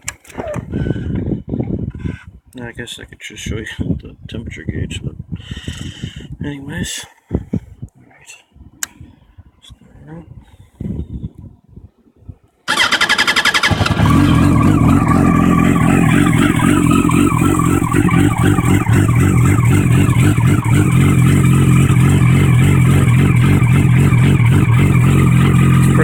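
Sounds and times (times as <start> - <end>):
motorcycle engine idling: 12.7 - 26.0
motorcycle starter cranking: 12.7 - 26.0.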